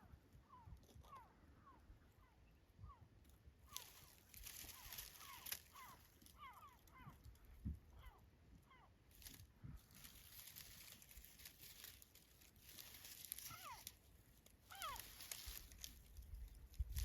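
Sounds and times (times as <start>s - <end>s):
faint seagull calls: 0.1s - 9.0s, 13.2s - 14.0s, 14.6s - 15.8s
soft rustling hiss: 9.1s - 17.0s.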